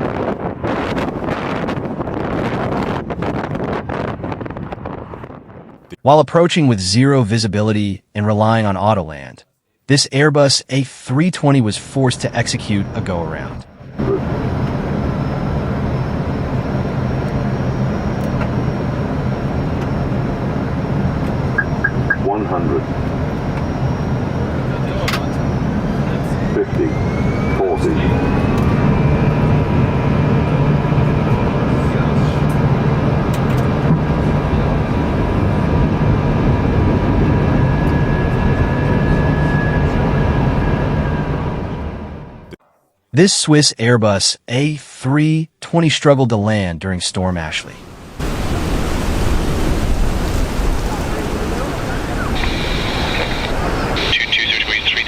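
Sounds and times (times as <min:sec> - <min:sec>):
aircraft engine and airflow noise: 0:00.0 - 0:06.0, 0:11.6 - 0:42.6, 0:47.6 - 0:55.0
low hum: 0:11.6 - 0:43.0, 0:47.6 - 0:55.0
faint high whine: 0:12.2 - 0:33.0, 0:47.7 - 0:55.0.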